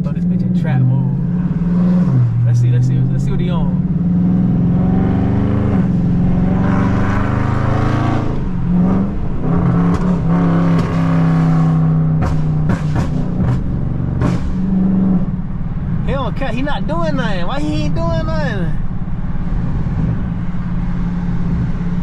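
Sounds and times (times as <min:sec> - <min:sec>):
car engine pulling hard: 0:00.0 - 0:22.0
sharp exhaust pops: 0:12.1 - 0:14.9.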